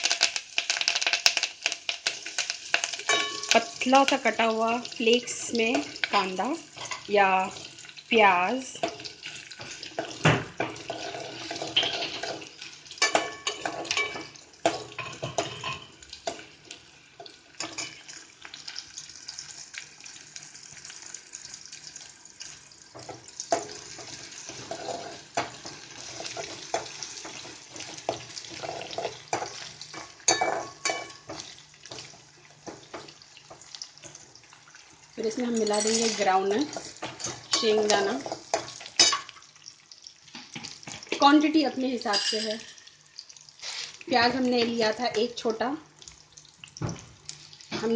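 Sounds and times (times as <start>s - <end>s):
onion sizzling in oil: 0.0s - 47.9s
spoon scraping a pan: 2.0s - 8.0s, 8.7s - 18.6s, 22.9s - 39.4s, 42.0s - 43.0s.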